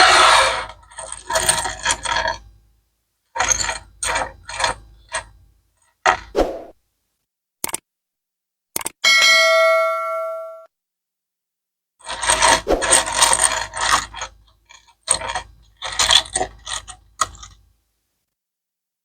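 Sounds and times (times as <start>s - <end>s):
mechanical clicking and ratcheting: 8.8s - 9.0s.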